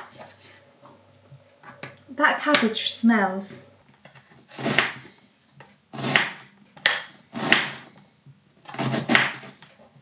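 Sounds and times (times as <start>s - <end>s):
knife chopping cabbage on board: 4.5s - 5.0s, 6.0s - 7.9s, 8.7s - 9.6s.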